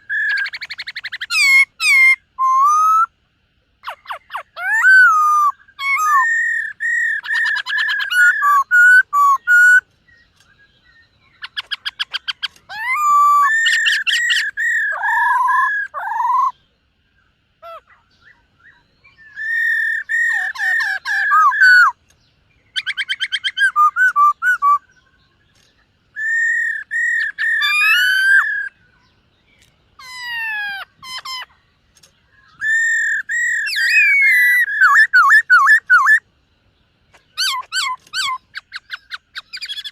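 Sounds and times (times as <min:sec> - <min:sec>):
bird singing whistled notes: 0:00.0 - 0:03.2, 0:03.8 - 0:39.9
rapid clicking bird trills: 0:03.8 - 0:16.5, 0:29.4 - 0:36.2, 0:37.1 - 0:39.9.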